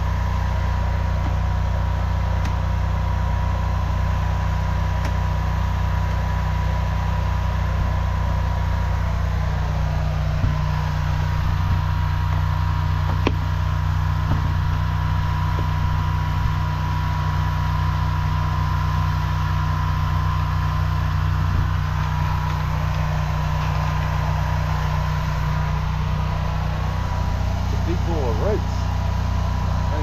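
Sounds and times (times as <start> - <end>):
engine running steadily: 0.0 - 30.0
thin steady whine: 0.0 - 30.0.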